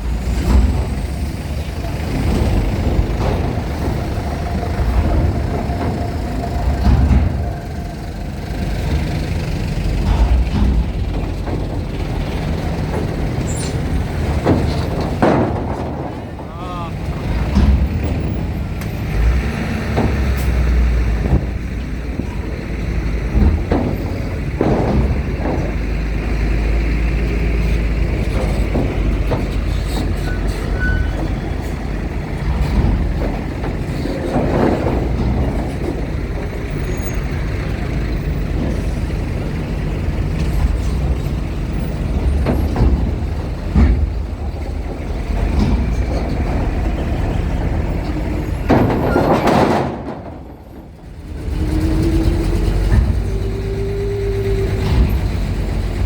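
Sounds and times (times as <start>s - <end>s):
low engine rumble: 0.0s - 56.0s
knocks: 10.0s - 16.6s, 19.7s - 26.8s.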